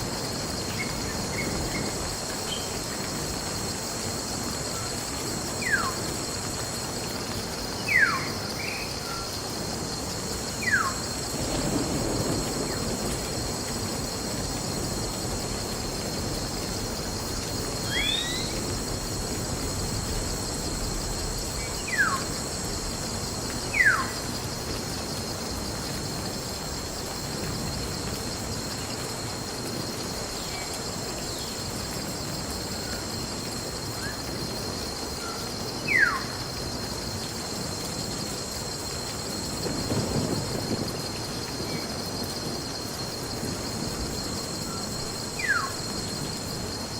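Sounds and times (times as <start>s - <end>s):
insects chirping chorus: 0.0s - 46.9s
bird whistling downward notes: 17.9s - 18.5s.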